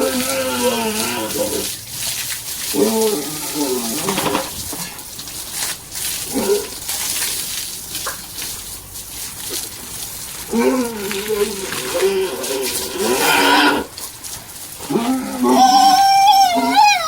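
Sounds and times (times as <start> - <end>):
pigs calling: 0.0 - 1.8, 2.6 - 4.5, 6.2 - 7.2, 10.4 - 14.0, 14.8 - 17.0
water splashing on pen floor: 0.0 - 17.0.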